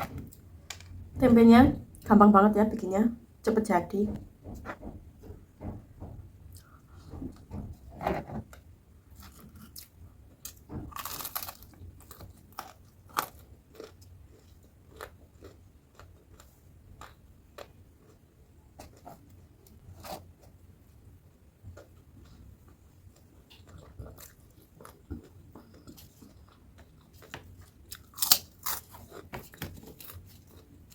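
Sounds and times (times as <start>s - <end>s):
chewing crispy fried food: 9.1s - 19.2s, 21.7s - 30.9s.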